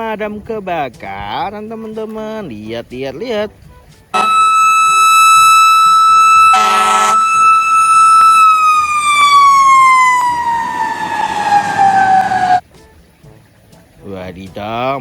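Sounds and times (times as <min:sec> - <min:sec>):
buzzy horn blast: 0:04.2 - 0:08.4
toy fire truck siren: 0:04.2 - 0:12.6.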